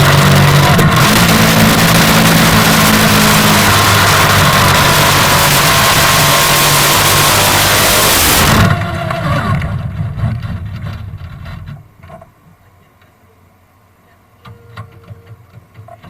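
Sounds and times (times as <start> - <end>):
engine running down to a stop: 0.0 - 11.8.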